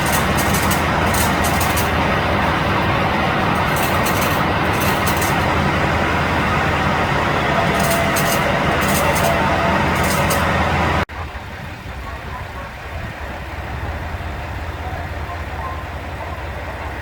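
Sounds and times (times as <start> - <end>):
high ticking: 0.0 - 11.0
diesel railcar engine drone: 0.0 - 17.0.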